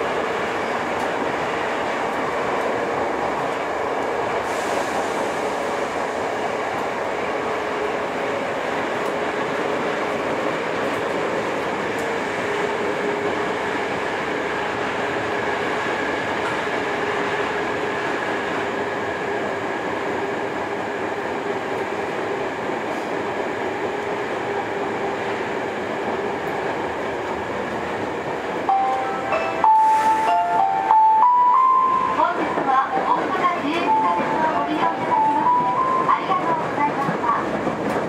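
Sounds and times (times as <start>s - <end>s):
electric train humming: 0.0s - 38.0s
electronic chime: 28.7s - 31.7s.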